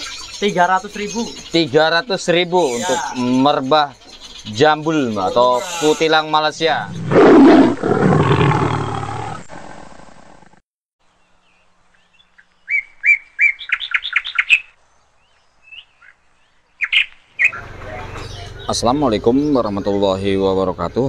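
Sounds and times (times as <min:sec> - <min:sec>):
small bird chirping: 0:00.0 - 0:07.2, 0:11.3 - 0:20.3.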